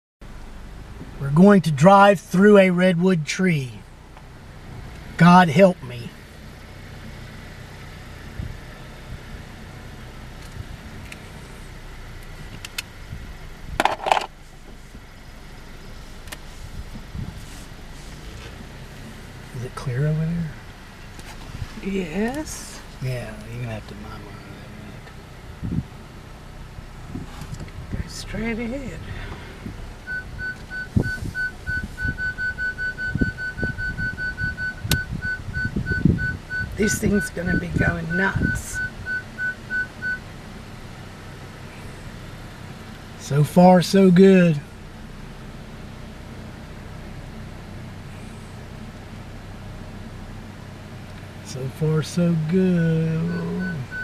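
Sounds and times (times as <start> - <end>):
car engine humming: 0.2 - 54.0
parking sensor beeping: 30.0 - 40.3, 52.9 - 54.0.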